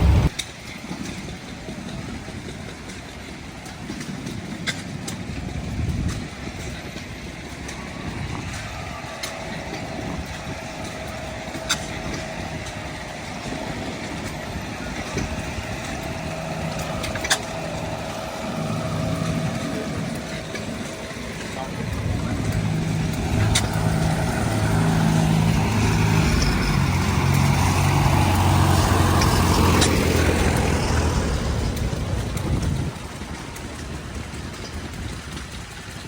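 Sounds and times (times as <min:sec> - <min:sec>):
vehicle engines idling: 0:00.0 - 0:36.0
background voices: 0:07.7 - 0:34.4.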